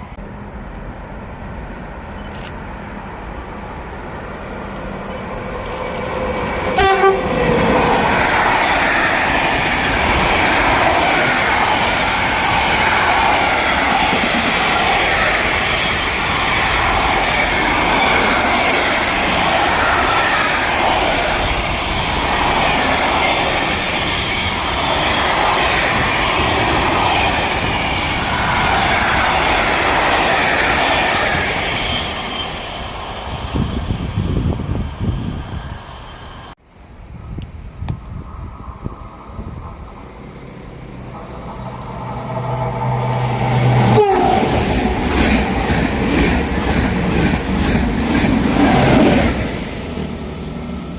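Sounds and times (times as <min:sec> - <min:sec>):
train wheels rushing on rails: 0:03.0 - 0:36.6, 0:37.6 - 0:50.9
train horn blast: 0:06.7 - 0:07.6, 0:42.2 - 0:44.8.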